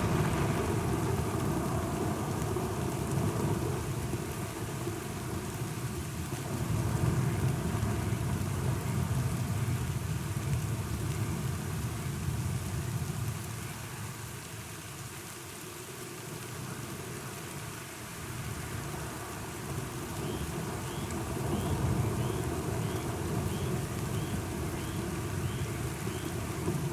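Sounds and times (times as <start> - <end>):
thunder rumbling: 0.0 - 3.8
steady rain: 0.0 - 26.9.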